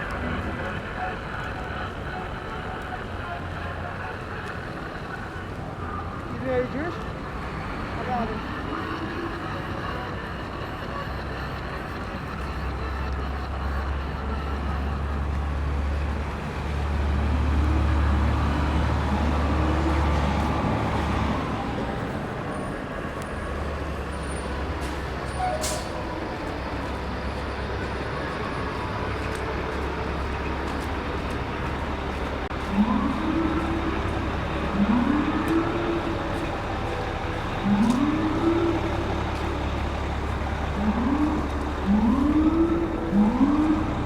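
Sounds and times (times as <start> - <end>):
city street traffic: 0.0 - 44.0
heavy vehicle engine rumbling: 0.0 - 44.0.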